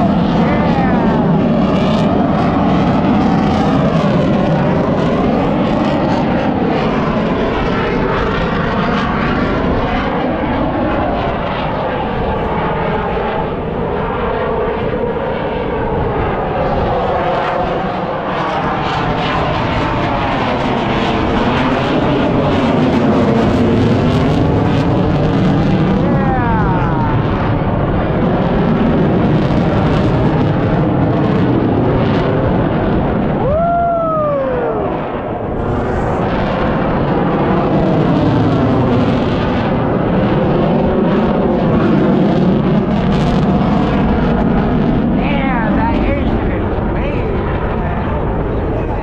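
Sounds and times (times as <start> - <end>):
airplane engine running: 0.0 - 49.0.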